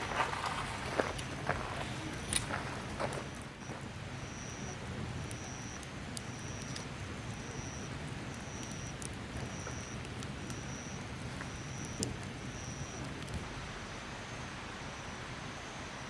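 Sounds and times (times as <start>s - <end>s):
sharp crackles: 0.0s - 13.5s
insect buzzing: 4.2s - 13.4s.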